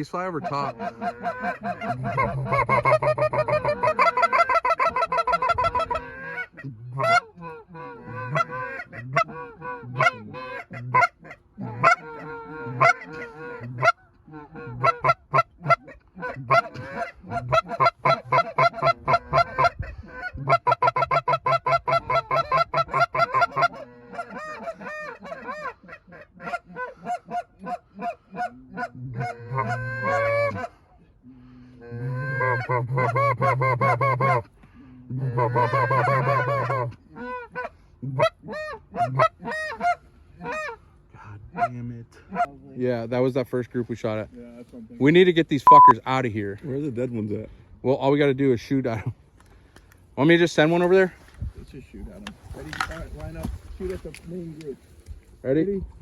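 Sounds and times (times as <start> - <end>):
geese honking: 0.0 - 42.5.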